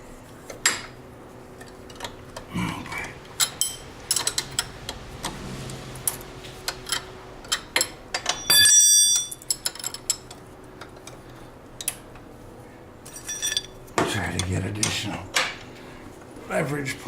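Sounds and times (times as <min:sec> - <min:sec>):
metal clang ringing: 0:05.2 - 0:09.5.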